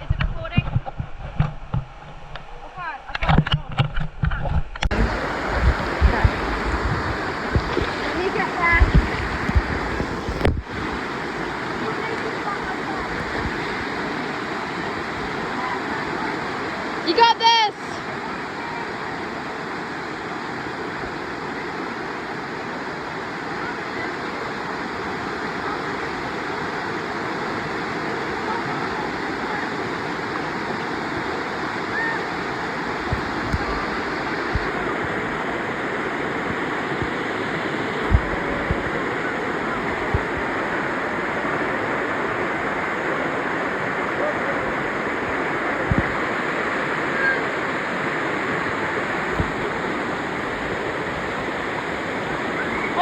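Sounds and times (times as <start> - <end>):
low thumps: 3.3 - 10.9, 33.0 - 35.3, 38.0 - 40.5
waterfall rushing: 4.9 - 53.0.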